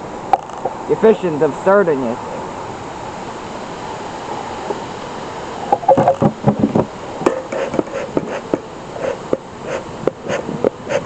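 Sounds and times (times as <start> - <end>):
bellows air puffs and knocks: 5.7 - 11.0.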